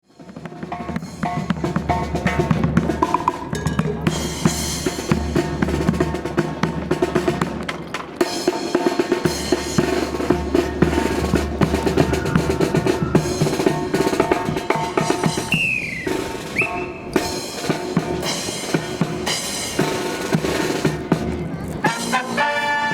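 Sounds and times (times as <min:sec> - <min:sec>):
snare drum rolls: 0:00.2 - 0:22.9.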